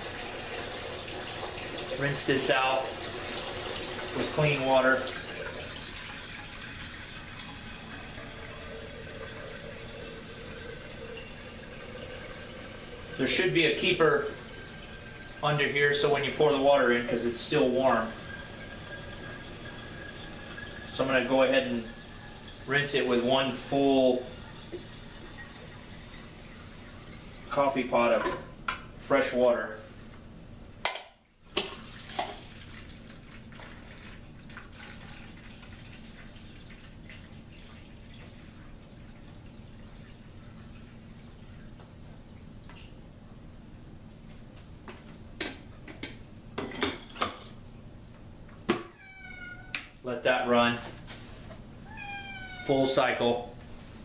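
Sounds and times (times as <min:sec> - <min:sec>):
tap water running into carafe: 0:00.0 - 0:28.8, 0:31.5 - 0:43.0.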